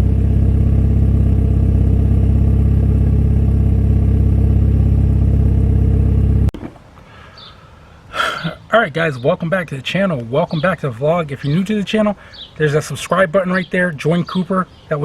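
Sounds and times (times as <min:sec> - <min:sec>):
car engine idling: 0:00.0 - 0:06.5.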